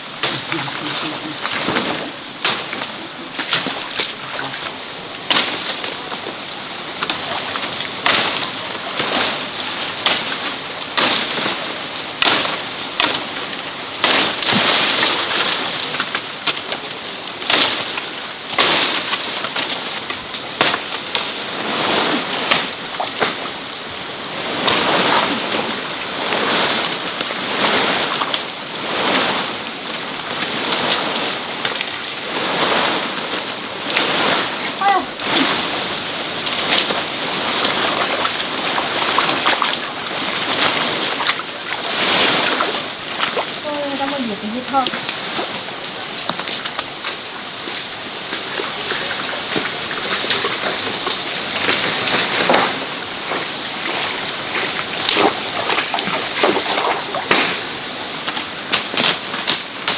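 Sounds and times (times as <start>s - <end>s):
water splashing and sloshing: 0.0s - 59.9s.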